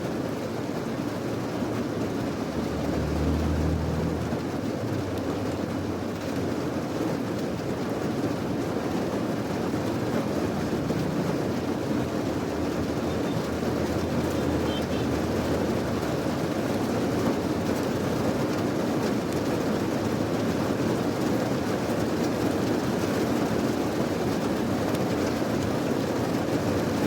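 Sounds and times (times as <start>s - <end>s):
steady rain hiss: 0.0s - 27.0s.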